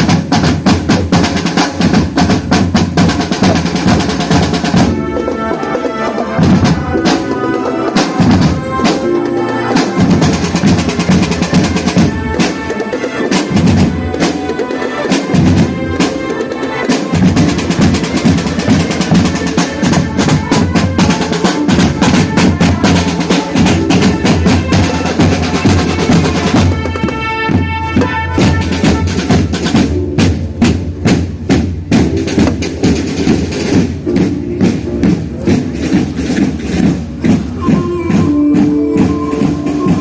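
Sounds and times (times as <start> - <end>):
marching band melody: 0.0 - 40.0
snare drum rolls: 0.0 - 40.0
bass drums: 17.2 - 40.0.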